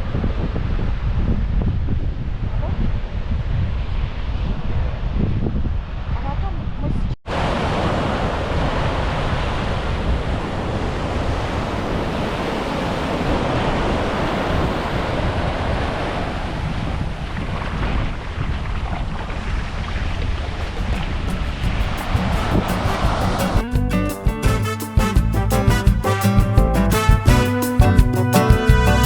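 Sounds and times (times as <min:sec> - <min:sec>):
wind buffeting microphone: 0:00.0 - 0:24.5
surf washing onto beach: 0:07.3 - 0:23.8.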